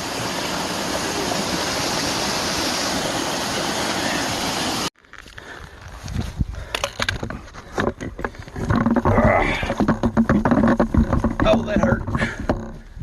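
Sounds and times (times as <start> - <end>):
creek water rushing: 0.0 - 4.9
low bumps: 6.0 - 13.0.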